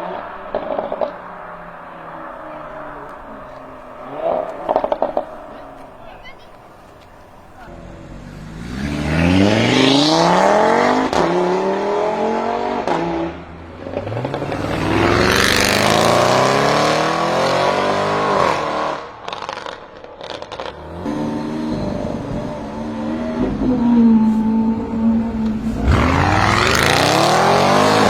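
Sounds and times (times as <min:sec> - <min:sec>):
car engine accelerating: 0:00.0 - 0:28.0
exhaust crackles and pops: 0:02.7 - 0:07.4, 0:19.2 - 0:20.8.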